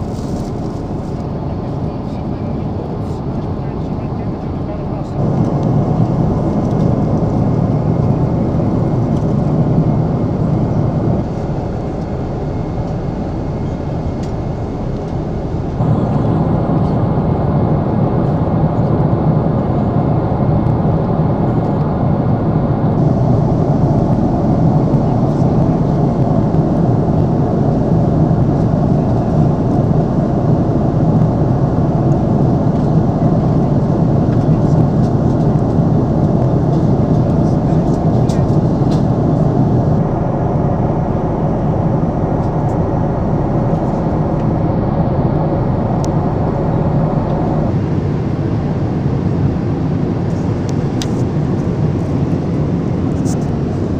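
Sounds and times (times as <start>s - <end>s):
airplane cabin rushing noise: 0.0s - 53.9s.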